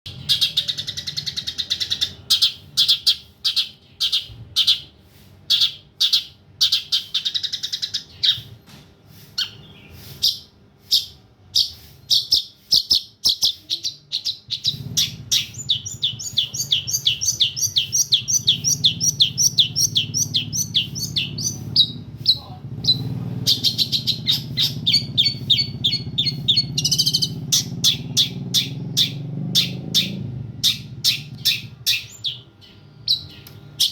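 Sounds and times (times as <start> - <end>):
low steady hum: 0.1 - 33.9
shrike singing: 9.4 - 33.9.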